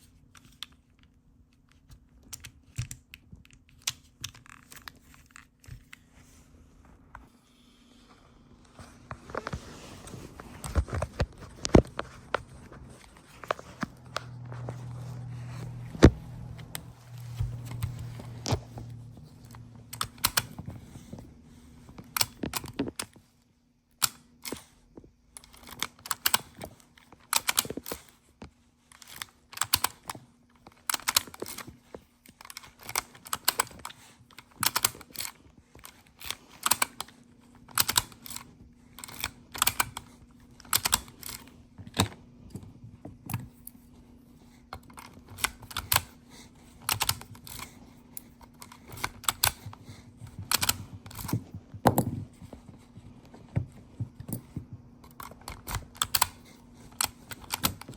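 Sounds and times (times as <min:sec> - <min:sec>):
low hum: 0:07.6 - 0:21.8.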